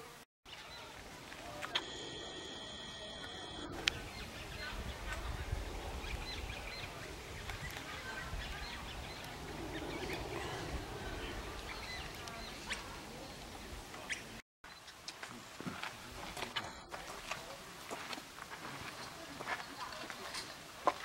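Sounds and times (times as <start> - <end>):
birds chirping: 0.5 - 21.0
low rumble: 3.8 - 13.9.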